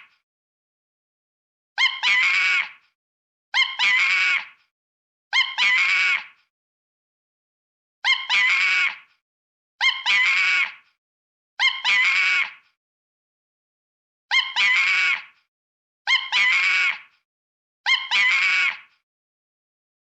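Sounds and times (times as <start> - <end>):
monkey screaming: 1.8 - 2.8, 3.6 - 4.6, 5.3 - 6.4, 8.0 - 9.1, 9.8 - 10.8, 11.6 - 12.6, 14.3 - 15.4, 16.1 - 17.1, 17.9 - 19.0.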